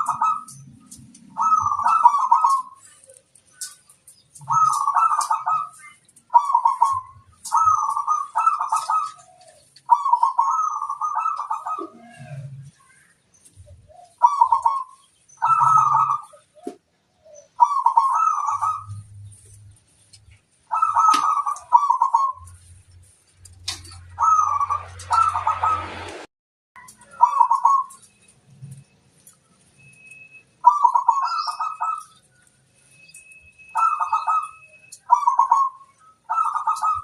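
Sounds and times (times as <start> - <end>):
dove cooing: 0.0 - 26.1, 26.8 - 28.8, 30.6 - 32.3, 33.6 - 37.0.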